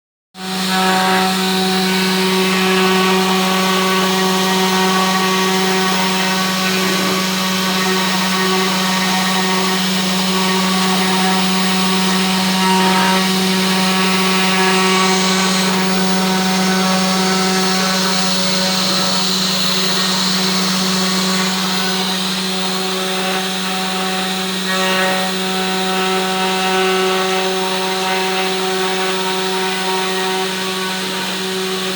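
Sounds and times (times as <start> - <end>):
spindle motor humming: 0.4 - 31.9
cutting hiss: 5.0 - 9.8.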